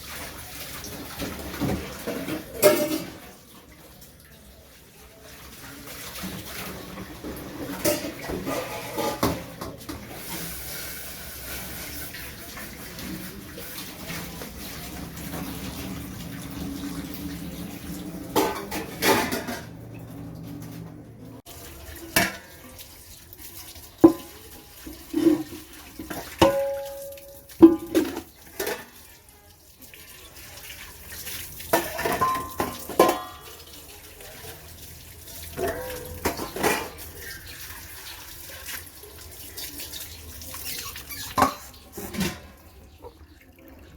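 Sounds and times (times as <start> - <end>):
running tap water: 0.0 - 43.9
dishes clinking and knocking: 1.2 - 3.2, 6.2 - 10.4, 18.3 - 19.8, 24.0 - 24.4, 25.1 - 29.0, 31.7 - 33.5, 35.6 - 37.2, 40.8 - 42.8.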